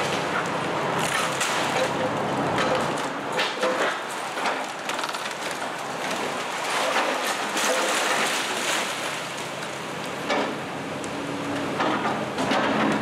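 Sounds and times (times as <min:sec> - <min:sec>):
falling debris: 0:01.0 - 0:02.0, 0:02.6 - 0:10.0
wood crunching and splintering: 0:01.0 - 0:10.2.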